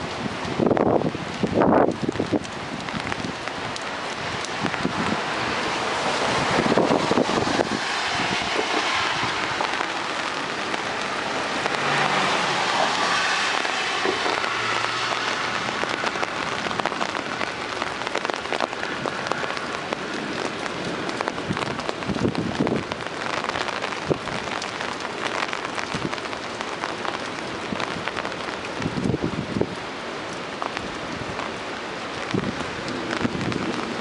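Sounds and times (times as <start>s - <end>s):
heavy rain pouring: 0.0s - 34.0s
raindrops tapping hard surface: 0.0s - 34.0s.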